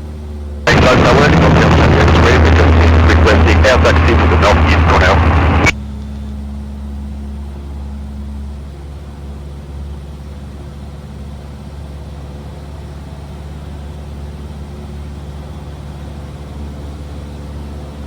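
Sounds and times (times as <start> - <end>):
aircraft engine droning: 0.7 - 5.8.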